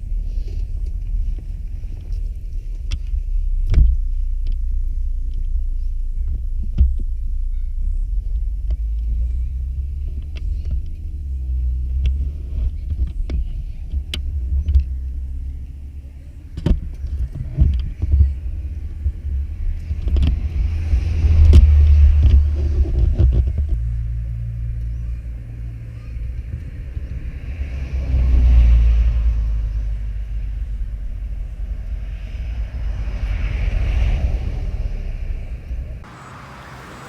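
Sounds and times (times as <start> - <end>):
wind hiss: 31.8 - 37.0
motorcycle engine rumbling: 36.0 - 37.0.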